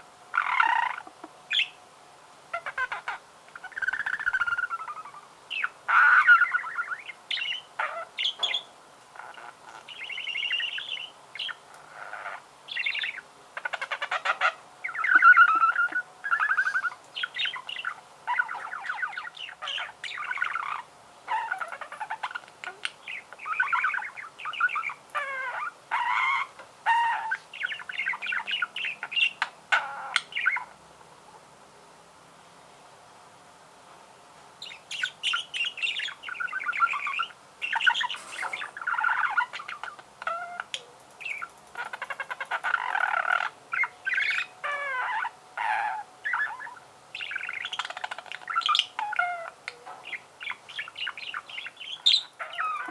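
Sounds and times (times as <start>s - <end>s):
budgerigar warbling: 2.5s - 30.7s, 34.6s - 52.9s.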